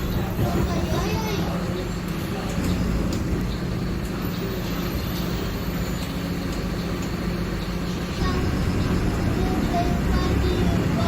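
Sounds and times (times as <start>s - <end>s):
diesel bus engine drone: 0.0s - 11.0s.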